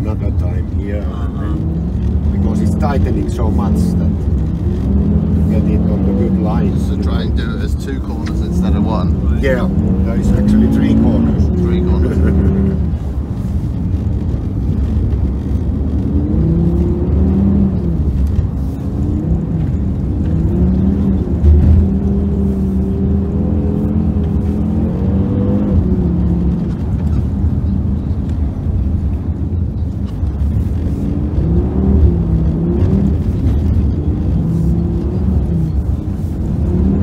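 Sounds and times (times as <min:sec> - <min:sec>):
car engine revving: 0:00.0 - 0:37.0
steady low rumble: 0:00.0 - 0:37.0.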